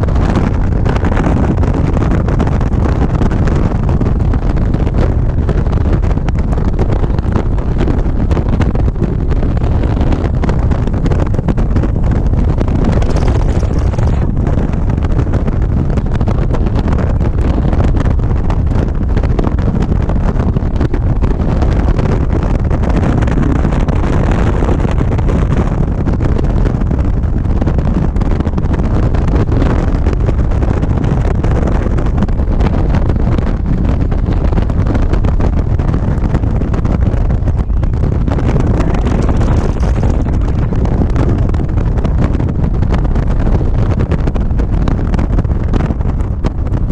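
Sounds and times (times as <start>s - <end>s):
road noise: 0.0s - 26.0s, 36.3s - 43.0s
wind buffeting microphone: 0.0s - 46.9s
motorcycle engine: 37.4s - 41.4s.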